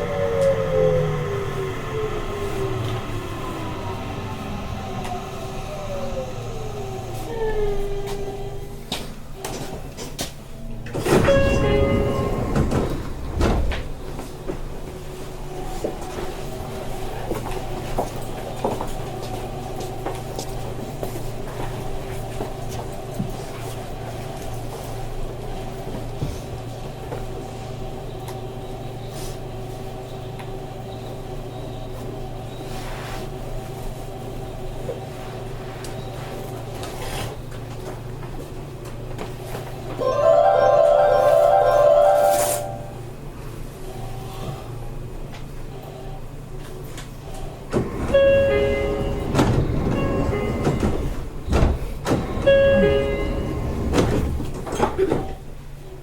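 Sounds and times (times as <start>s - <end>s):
train interior hum: 0.0s - 56.0s
two-note electronic chime: 40.0s - 43.0s.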